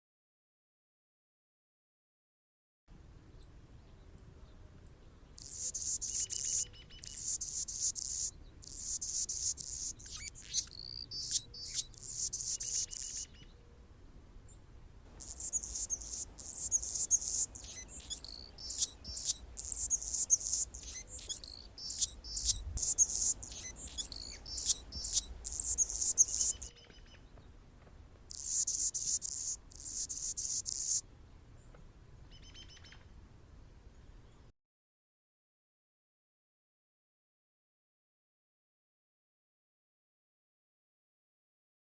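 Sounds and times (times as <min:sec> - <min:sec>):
hummingbird singing: 0:05.3 - 0:13.4, 0:15.2 - 0:26.7, 0:28.3 - 0:31.0.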